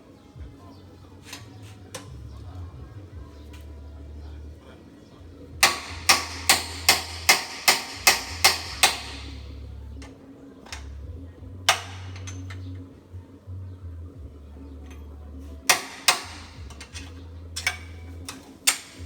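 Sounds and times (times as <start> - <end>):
hammer striking metal parts: 5.6 - 9.4, 11.7 - 12.6, 14.8 - 19.0.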